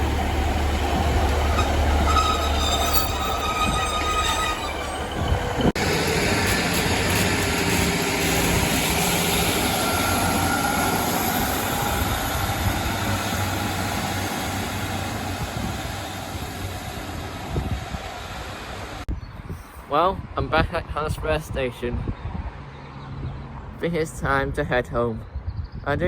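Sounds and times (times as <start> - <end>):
train rumbling on the line: 0.0 - 19.1.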